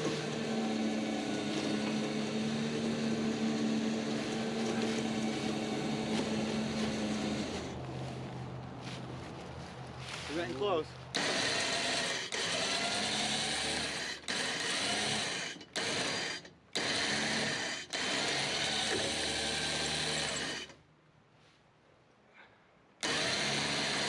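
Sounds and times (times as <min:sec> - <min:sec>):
winch motor running: 0:00.0 - 0:07.8, 0:11.2 - 0:20.8, 0:23.0 - 0:24.0.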